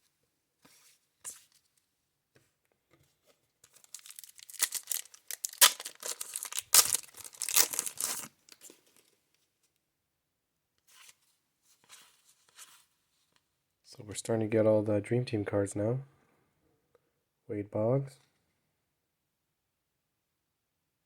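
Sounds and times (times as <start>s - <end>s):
soft rustles of handling: 0.0s - 9.8s, 10.8s - 13.5s
wrapper ripping and crinkling: 3.7s - 8.7s.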